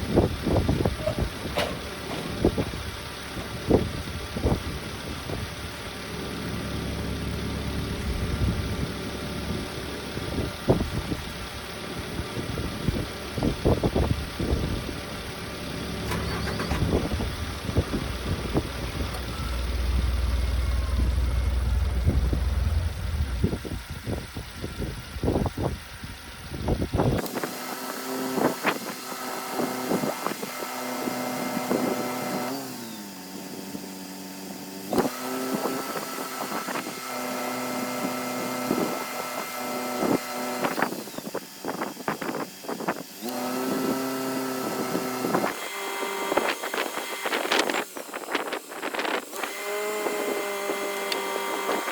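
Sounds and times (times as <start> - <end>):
truck engine running: 0.0 - 27.2
steady hum: 15.9 - 24.7.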